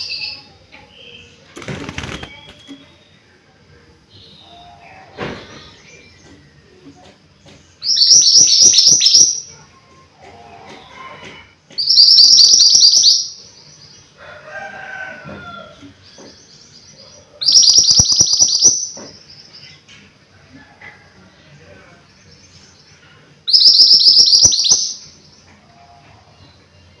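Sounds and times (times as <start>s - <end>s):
songbird singing high sharp notes: 23.5s - 25.1s.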